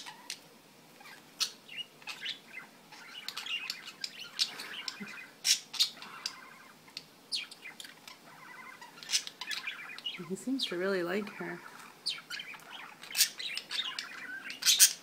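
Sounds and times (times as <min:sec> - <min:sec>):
budgies chirping and squawking: 0:00.0 - 0:00.4, 0:01.0 - 0:15.0.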